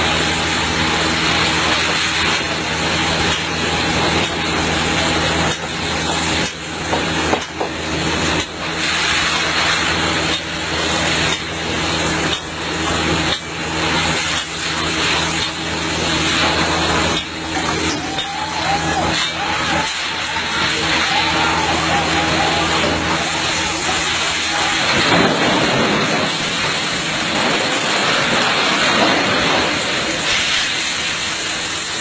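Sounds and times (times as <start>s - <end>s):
dense rushing noise: 0.0s - 32.0s
diesel engine running: 0.0s - 32.0s.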